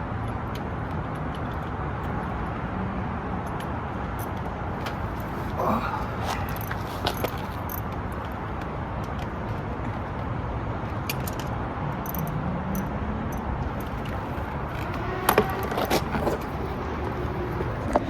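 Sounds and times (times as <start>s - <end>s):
steady background noise: 0.0s - 18.0s
metal tools clinking on engine parts: 11.0s - 14.2s.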